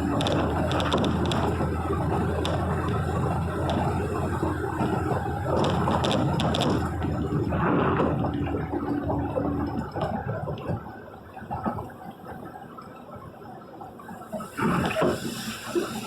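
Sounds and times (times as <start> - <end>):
heavy rain on vehicle: 0.0 - 10.8.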